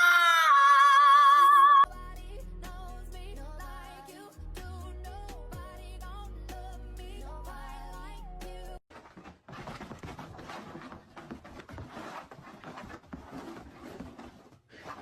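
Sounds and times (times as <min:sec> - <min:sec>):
scuffling and scratchy noises: 0:08.9 - 0:15.0.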